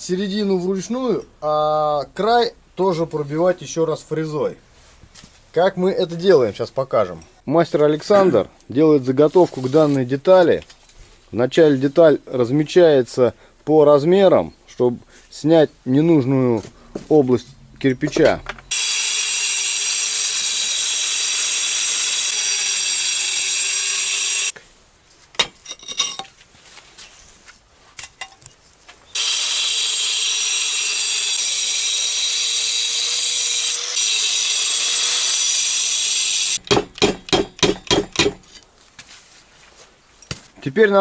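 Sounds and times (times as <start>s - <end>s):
angle grinder cutting brick: 18.7s - 24.5s, 29.1s - 36.6s.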